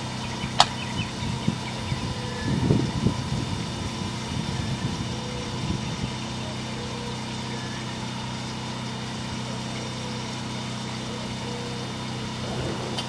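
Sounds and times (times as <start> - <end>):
engine humming: 0.0 - 13.0
uneven rumbling: 11.8 - 13.0.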